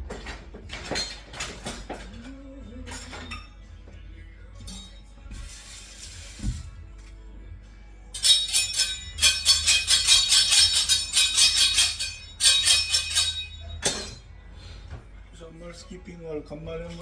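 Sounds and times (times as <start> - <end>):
rhythmic metallic jingling: 8.2 - 14.4.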